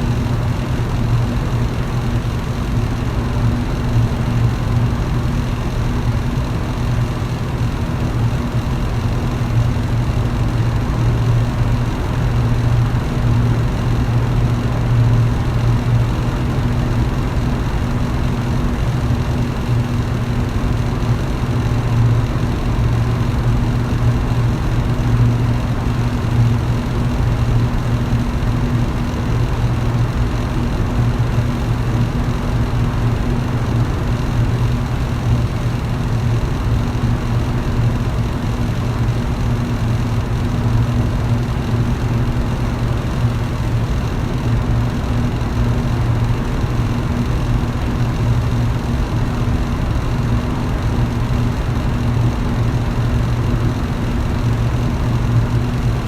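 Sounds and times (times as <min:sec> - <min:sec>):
electric fan running: 0:00.0 - 0:56.0.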